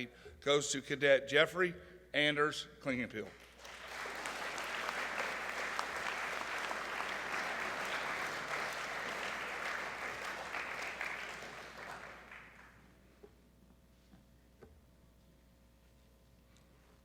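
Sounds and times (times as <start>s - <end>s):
audience applauding: 3.4s - 12.8s.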